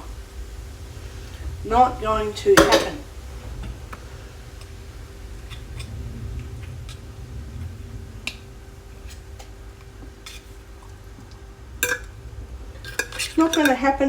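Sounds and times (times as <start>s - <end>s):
steady low hum: 0.0s - 14.0s
cutlery and dishes clattering: 2.6s - 3.0s.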